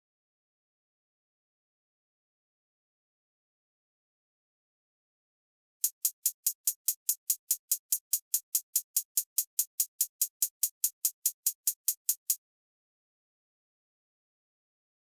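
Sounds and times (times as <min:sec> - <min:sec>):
drum machine hi-hat ticks: 0:05.8 - 0:12.4.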